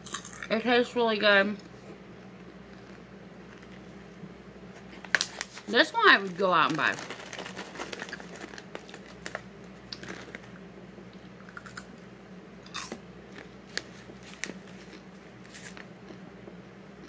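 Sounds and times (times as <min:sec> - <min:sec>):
popcorn being chewed: 0:00.0 - 0:00.6, 0:01.5 - 0:12.0, 0:12.6 - 0:17.0
plastic bag crackling: 0:05.0 - 0:10.6, 0:13.6 - 0:15.9.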